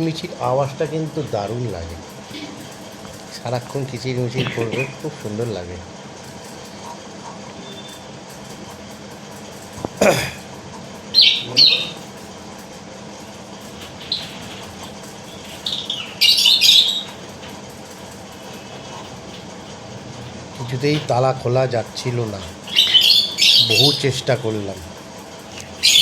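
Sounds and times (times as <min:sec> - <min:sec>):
lovebirds chirping: 0:02.2 - 0:05.5, 0:11.0 - 0:12.2, 0:13.2 - 0:17.4, 0:18.4 - 0:24.8, 0:25.5 - 0:26.0.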